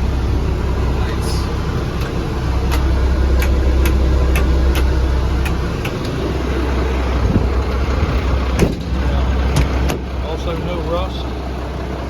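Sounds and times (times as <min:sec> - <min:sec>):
diesel engine idling: 0:00.0 - 0:12.0
sharp engine ticks: 0:01.9 - 0:06.2.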